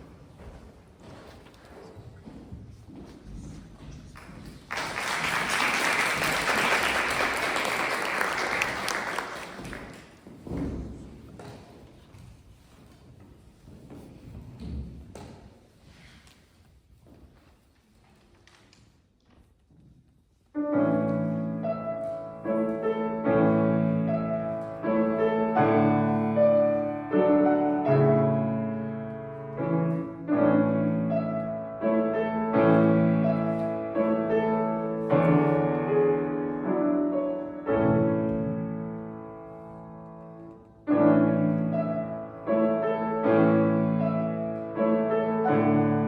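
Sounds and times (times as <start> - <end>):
audience applauding: 4.2 - 10.2
piano playing slow chords: 20.6 - 46.0.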